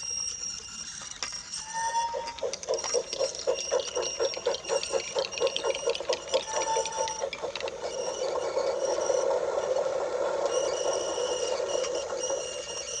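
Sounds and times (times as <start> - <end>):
toy train rolling on wooden track: 0.0 - 13.0.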